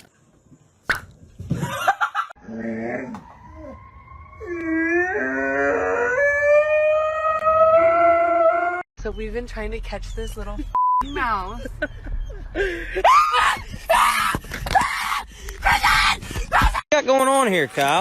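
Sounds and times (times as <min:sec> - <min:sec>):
dog howling: 0:04.4 - 0:08.8.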